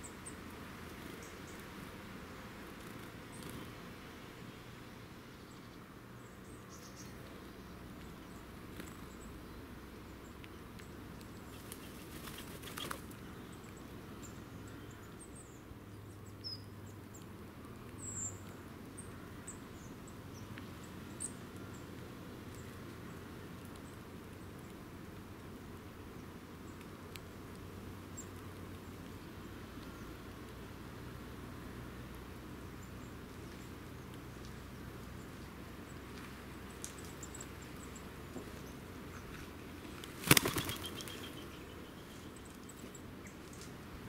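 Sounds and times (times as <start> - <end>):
low outdoor background rumble: 0.0 - 44.0
bird wings flapping: 11.5 - 13.2, 39.9 - 41.4.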